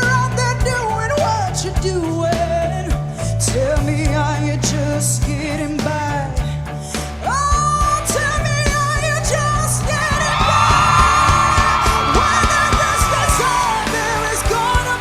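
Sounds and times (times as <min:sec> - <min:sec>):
live pop band: 0:00.0 - 0:15.0
audience whooping and screaming: 0:09.2 - 0:15.0.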